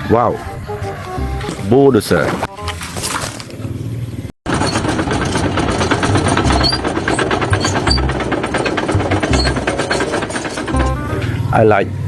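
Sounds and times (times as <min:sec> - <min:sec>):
small motor rattling: 0:04.5 - 0:11.4.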